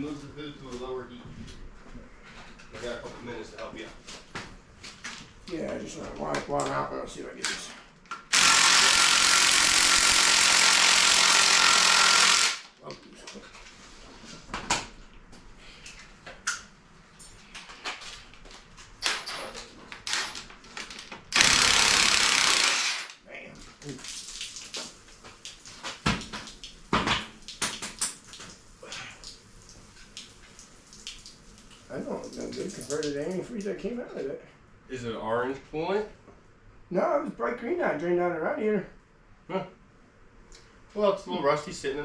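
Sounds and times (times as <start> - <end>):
power tool running: 8.3 - 12.7, 21.3 - 23.2.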